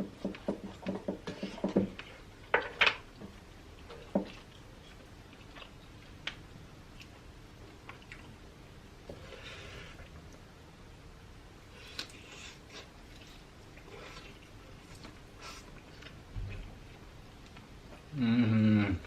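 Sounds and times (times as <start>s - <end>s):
close chewing: 11.8s - 18.1s.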